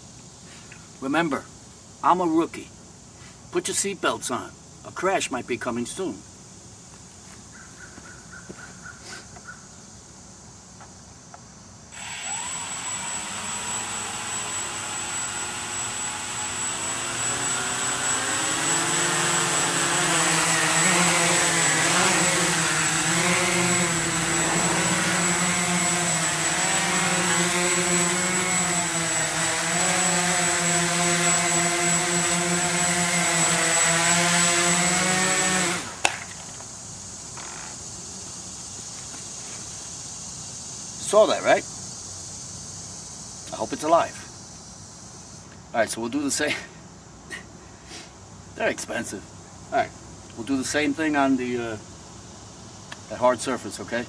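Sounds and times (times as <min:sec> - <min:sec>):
quadcopter propellers buzzing: 0:11.9 - 0:36.6.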